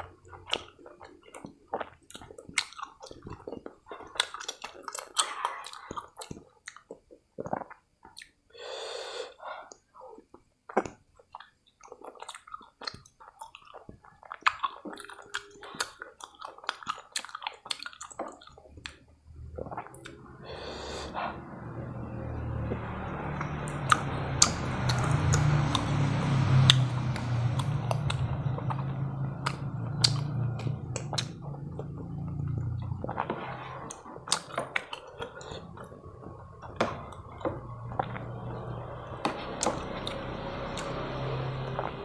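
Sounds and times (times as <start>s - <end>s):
chewing and mouth clicks: 0.0s - 8.4s, 9.7s - 20.3s, 22.7s - 42.0s
low steady hum: 18.3s - 42.0s.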